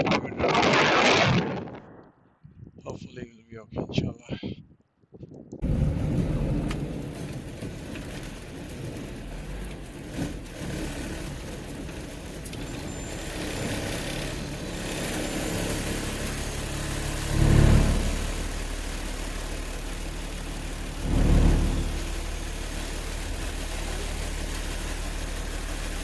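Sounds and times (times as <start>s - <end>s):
car engine and tyre noise: 5.6s - 26.0s.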